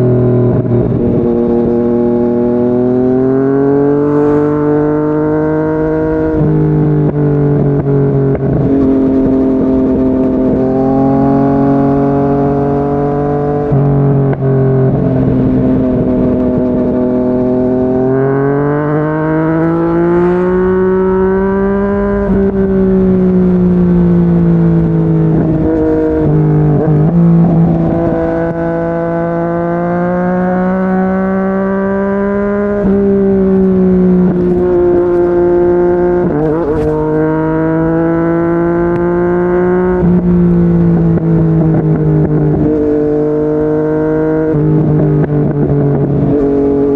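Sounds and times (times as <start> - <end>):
motorcycle engine revving: 0.0 - 46.9
wind rush: 5.8 - 31.2, 32.0 - 46.9.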